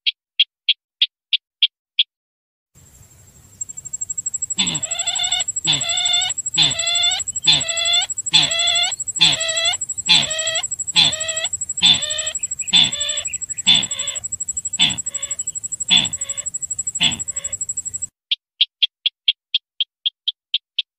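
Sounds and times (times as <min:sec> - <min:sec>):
bird lure call: 0:03.6 - 0:18.1
high electronic whine: 0:03.6 - 0:18.1.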